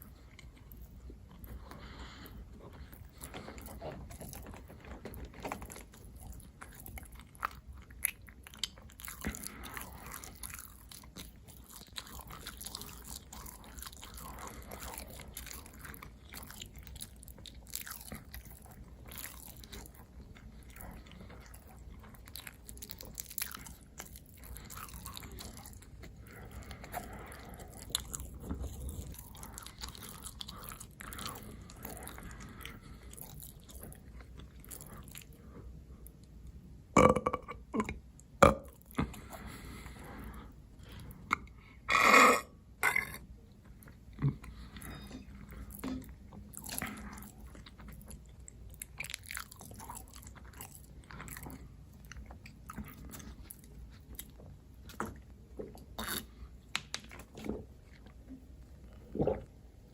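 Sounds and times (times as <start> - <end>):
person biting and chewing food: 5.3 - 35.3, 55.8 - 56.5.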